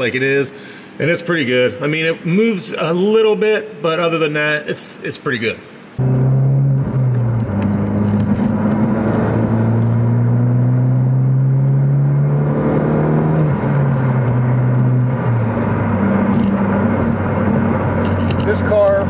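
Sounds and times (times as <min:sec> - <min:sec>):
car engine heard from cabin: 0:06.0 - 0:19.0.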